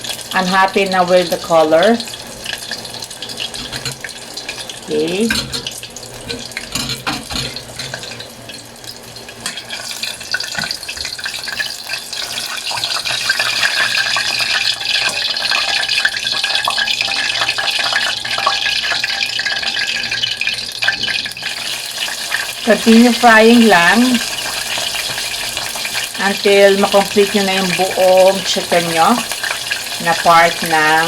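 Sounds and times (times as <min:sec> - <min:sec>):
chicken sizzling in hot oil: 0:00.0 - 0:31.0.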